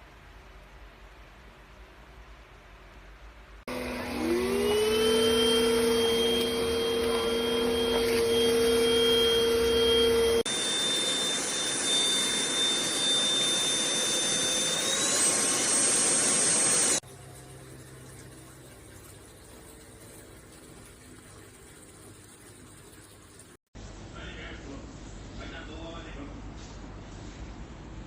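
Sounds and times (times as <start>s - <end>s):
handheld vacuum cleaner whining: 3.7s - 17.0s.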